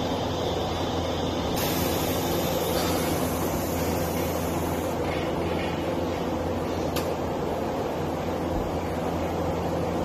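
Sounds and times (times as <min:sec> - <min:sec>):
machine humming with hiss: 0:00.0 - 0:10.0.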